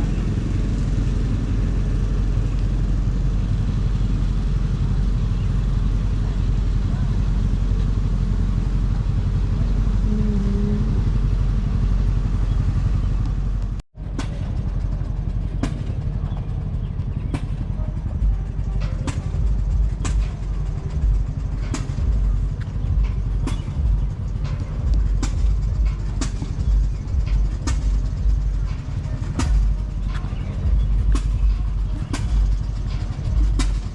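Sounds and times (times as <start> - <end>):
engine droning: 0.0 - 33.9
engine rumble with sharp pops: 0.0 - 33.9.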